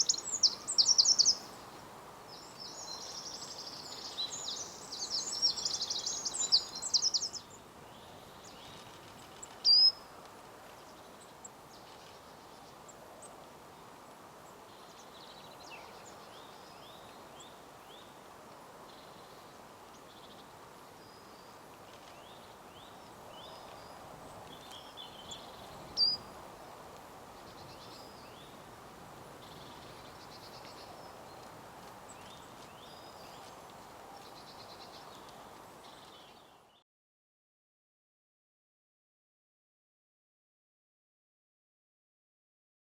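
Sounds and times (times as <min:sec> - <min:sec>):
birdsong: 0:00.0 - 0:10.1, 0:21.1 - 0:26.4
faint background hiss: 0:00.0 - 0:36.8.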